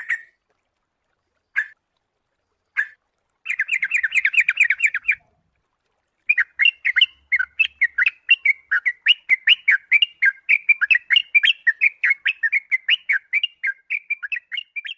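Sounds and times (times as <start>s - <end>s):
bird calling in short chirps: 0.0s - 0.4s, 1.6s - 1.8s, 2.8s - 5.2s.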